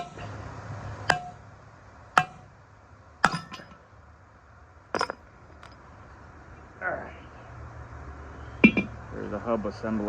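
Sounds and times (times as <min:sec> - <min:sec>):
metal tools striking metal: 0:01.1 - 0:01.4, 0:02.2 - 0:02.5, 0:03.2 - 0:03.8.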